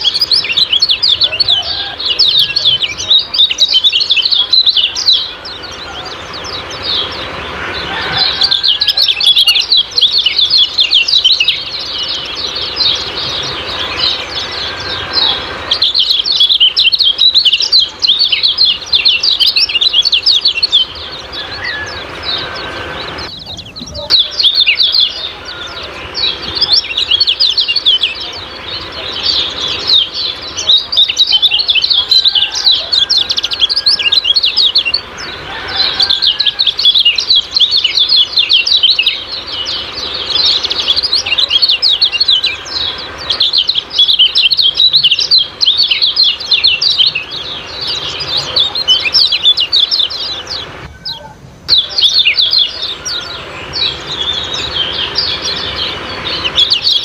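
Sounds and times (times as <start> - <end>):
songbird chirping rapidly: 0.0 - 57.0.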